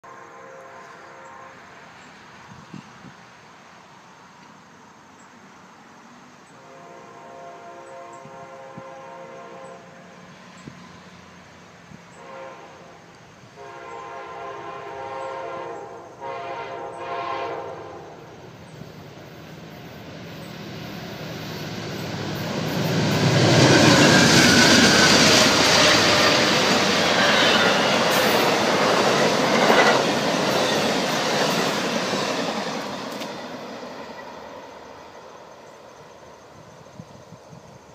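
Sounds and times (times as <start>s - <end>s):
train horn blasts: 0.0s - 2.0s, 6.5s - 10.4s, 12.1s - 18.4s, 22.9s - 32.2s
train rumbling past: 0.0s - 37.9s.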